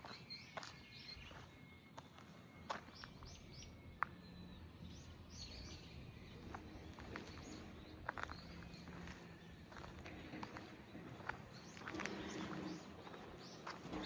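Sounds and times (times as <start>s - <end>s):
small birds chirping: 0.0s - 14.0s
footsteps tapping: 8.1s - 14.0s.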